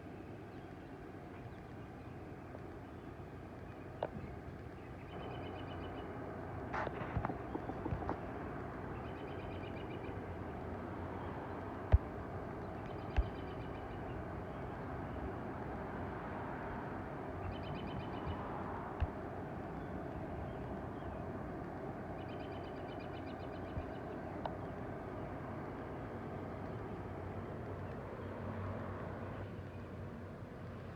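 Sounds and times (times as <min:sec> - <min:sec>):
sharp taps: 0:13.1 - 0:13.4.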